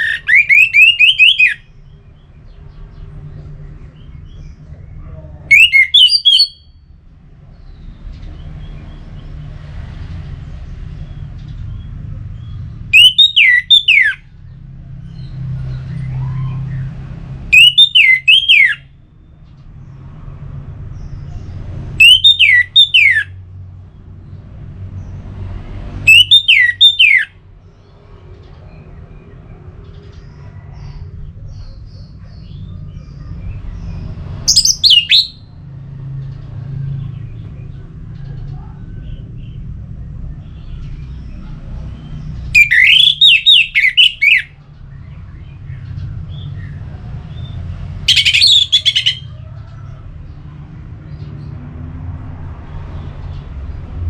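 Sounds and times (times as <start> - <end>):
thrush whistled calls: 0.0 - 2.0, 5.5 - 6.8, 12.9 - 14.3, 17.5 - 19.0, 22.0 - 23.4, 26.1 - 27.4, 33.8 - 35.6, 42.0 - 44.6, 46.3 - 49.3.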